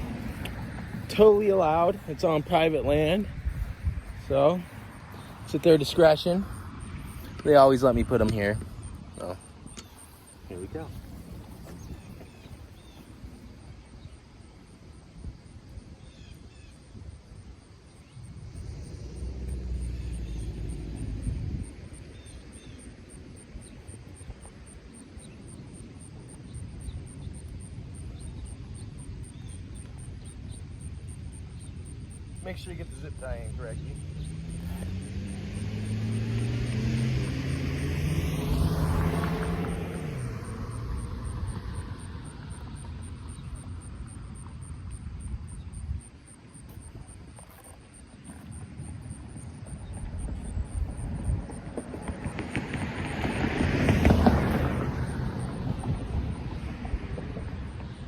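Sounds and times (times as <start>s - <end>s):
vehicle engine humming: 0.0s - 13.1s, 24.4s - 58.0s
steady low rumble: 0.0s - 13.5s.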